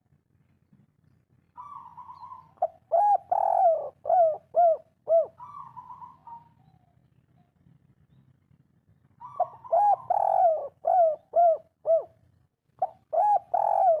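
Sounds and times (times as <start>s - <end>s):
dove cooing: 1.6s - 7.0s, 9.2s - 12.2s, 12.8s - 14.0s.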